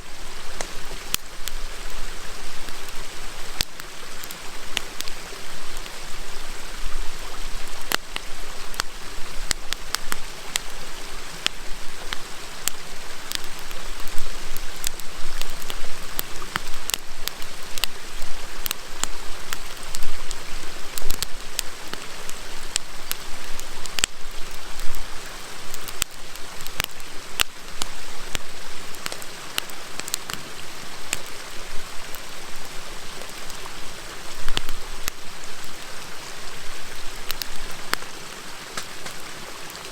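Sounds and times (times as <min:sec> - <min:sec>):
campfire crackling and popping: 0:00.0 - 0:39.9
river flowing: 0:00.0 - 0:39.9.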